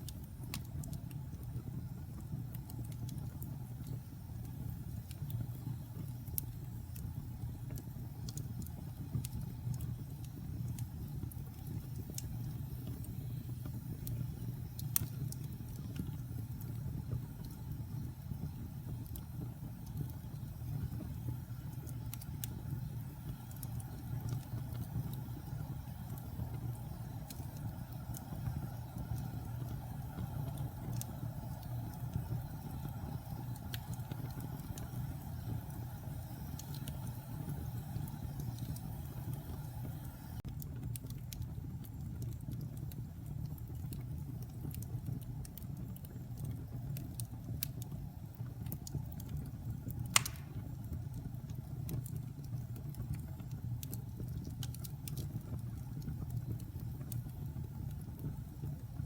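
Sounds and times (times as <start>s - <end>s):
fire crackling: 0.0s - 59.0s
low rumble of flames: 0.0s - 59.0s
loud sharp pop: 50.2s - 50.6s.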